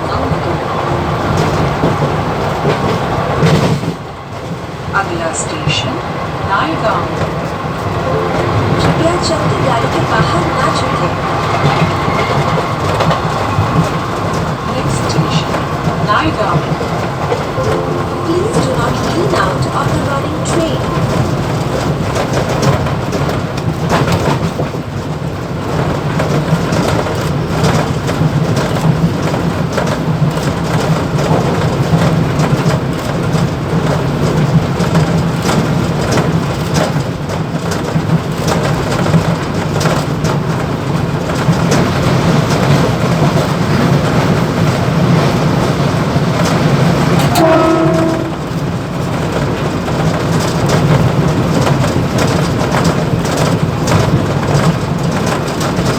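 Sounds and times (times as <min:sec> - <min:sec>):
train running noise: 0:00.0 - 0:55.9
wheels clicking and rattling over track: 0:18.6 - 0:55.9
train horn blast: 0:47.1 - 0:48.8.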